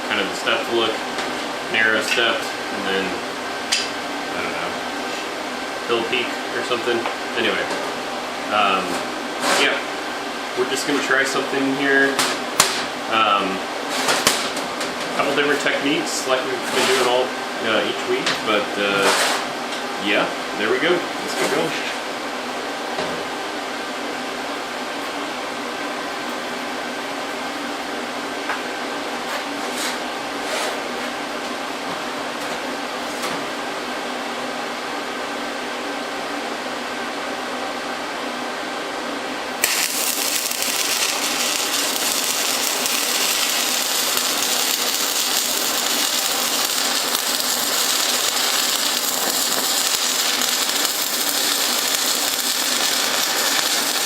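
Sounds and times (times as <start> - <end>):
welder humming: 39.5 - 54.0
welding arc crackling: 39.6 - 54.0.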